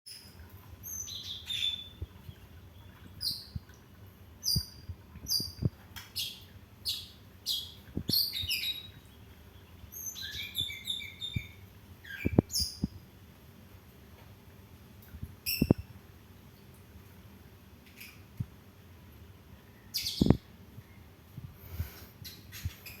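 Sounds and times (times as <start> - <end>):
songbird chirping: 4.4 - 13.0, 19.6 - 21.0.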